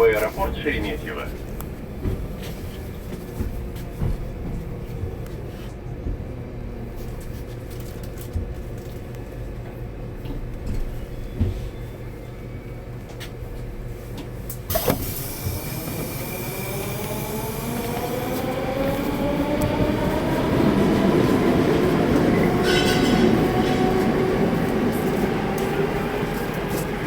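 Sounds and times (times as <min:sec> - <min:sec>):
wheels rumbling on rail: 0:00.0 - 0:27.0
train traction motors whining: 0:14.7 - 0:27.0.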